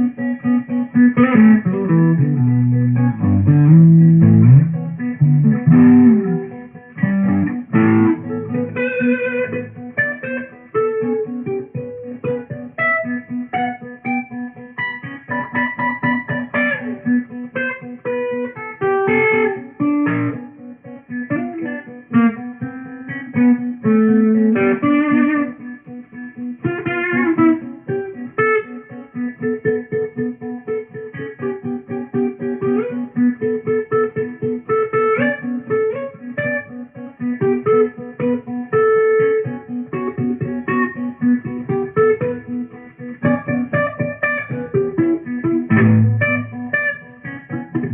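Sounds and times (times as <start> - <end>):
solo guitar plucking: 0.0 - 47.9.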